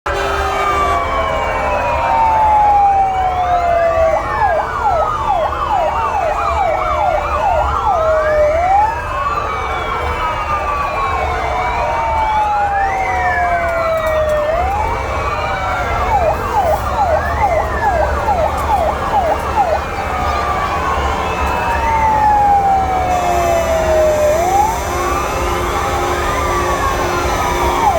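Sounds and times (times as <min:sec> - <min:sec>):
fire engine sirens wailing: 0:00.0 - 0:27.9
two-tone horn: 0:00.1 - 0:01.4, 0:23.0 - 0:27.9
engine rumble: 0:00.2 - 0:27.9.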